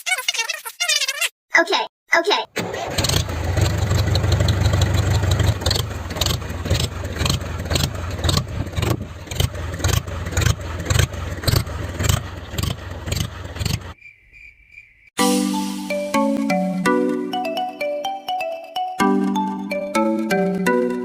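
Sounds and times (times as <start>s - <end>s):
tractor engine running: 2.6s - 14.0s.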